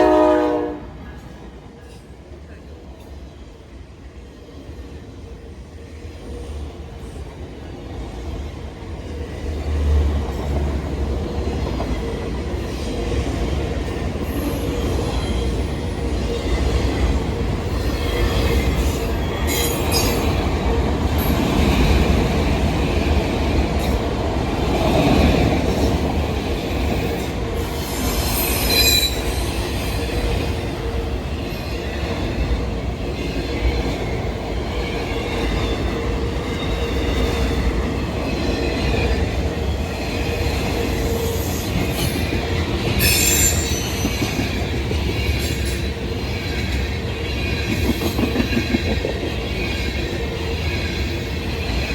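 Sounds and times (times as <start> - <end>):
freight train cars rumbling: 0.0 - 51.9
wheel squeals: 43.0 - 44.4.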